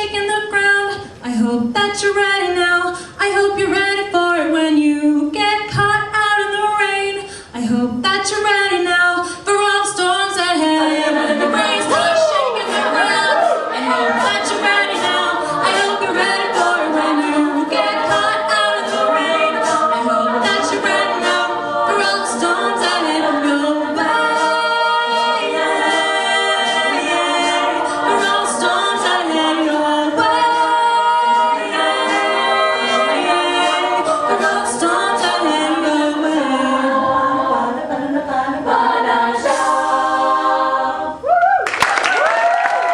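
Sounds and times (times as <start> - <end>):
women singing close harmony: 0.0 - 41.5.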